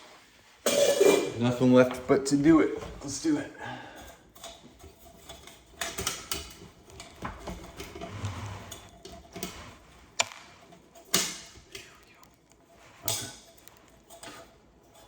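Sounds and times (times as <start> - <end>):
metal light fitting clicking and rattling: 4.0 - 8.1, 8.7 - 15.0.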